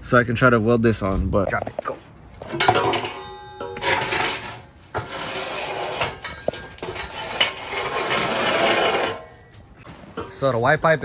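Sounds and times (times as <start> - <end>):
ringing metal clang: 2.4 - 7.7
metal clanking and scraping: 2.4 - 11.0.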